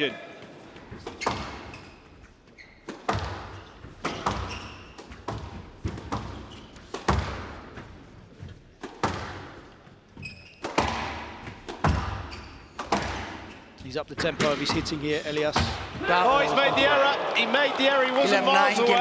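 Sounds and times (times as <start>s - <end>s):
shoes squeaking on court: 0.4s - 15.2s
squash racket hits: 0.8s - 16.1s.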